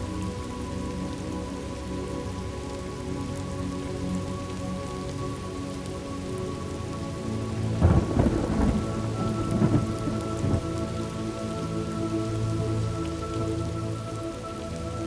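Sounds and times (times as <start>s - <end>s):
steady rain: 0.0s - 15.0s
thunder rolling and cracking: 7.8s - 10.7s.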